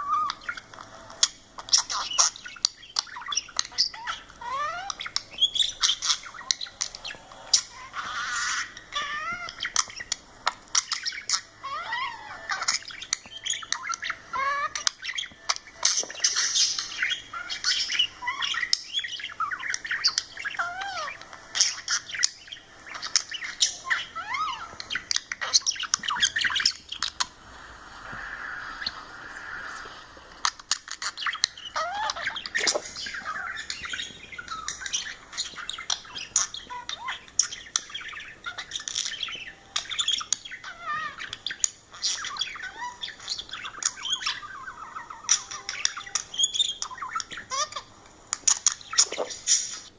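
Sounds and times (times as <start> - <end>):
soft scratchy bird warble: 10.8 - 49.9.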